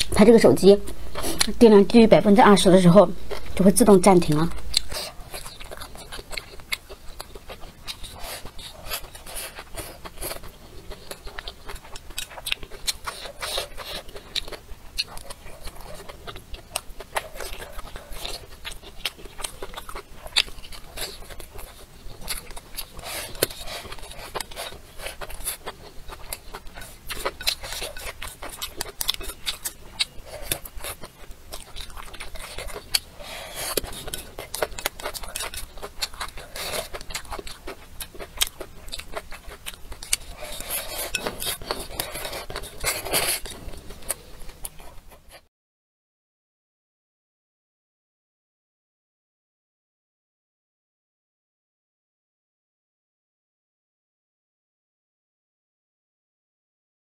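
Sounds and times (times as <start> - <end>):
chewing and crunching: 0.0 - 45.4.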